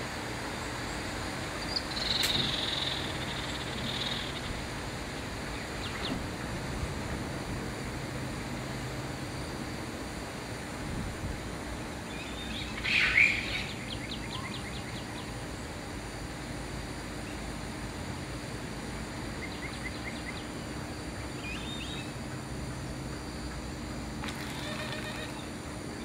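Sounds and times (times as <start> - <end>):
steady background hiss: 0.0 - 26.0
birds calling: 1.6 - 6.3, 12.0 - 15.4, 19.2 - 22.3, 24.2 - 26.0.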